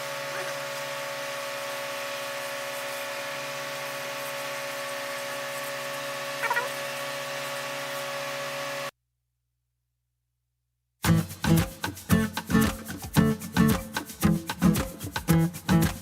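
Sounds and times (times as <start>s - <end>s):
small electric motor running: 0.0s - 8.9s
squeak: 6.4s - 7.0s.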